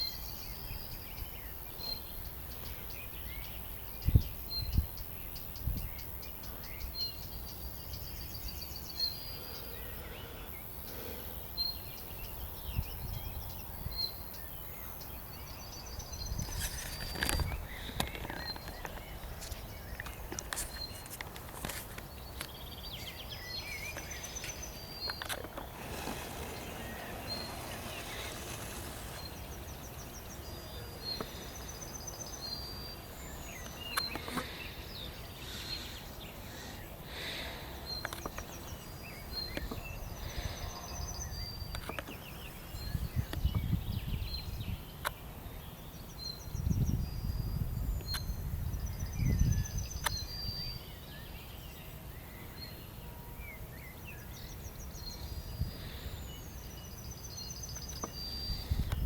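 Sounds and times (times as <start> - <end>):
wind buffeting microphone: 3.2 - 6.3, 11.6 - 14.6, 15.4 - 21.5, 22.1 - 32.4, 42.6 - 45.0, 46.4 - 50.8, 58.4 - 59.0
bird chirps: 22.0 - 59.0.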